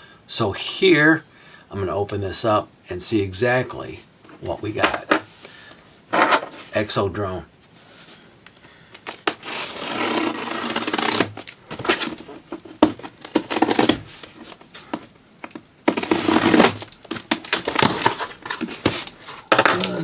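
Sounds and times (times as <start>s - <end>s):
packing tape tearing: 9.0s - 14.6s, 15.9s - 20.0s
cardboard rubbing and scraping: 9.3s - 15.1s, 15.9s - 20.0s.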